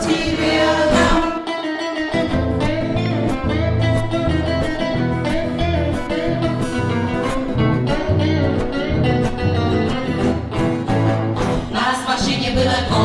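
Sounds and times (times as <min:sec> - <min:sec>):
guitar playing: 0:00.0 - 0:13.0
pulsing bass line: 0:02.4 - 0:11.6.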